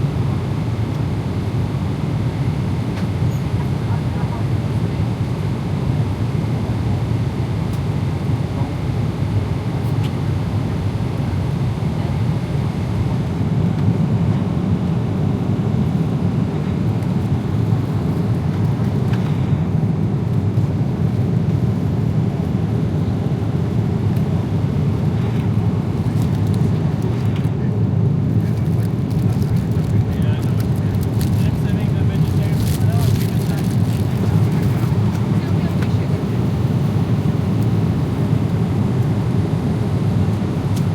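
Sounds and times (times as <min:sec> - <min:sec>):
airliner cabin engine rumble: 0:00.0 - 0:40.9.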